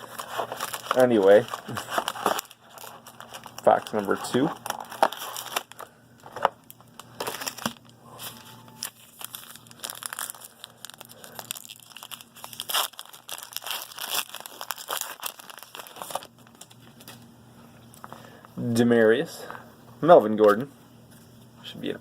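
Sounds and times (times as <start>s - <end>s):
plastic wrapping crinkling: 0.0s - 17.2s.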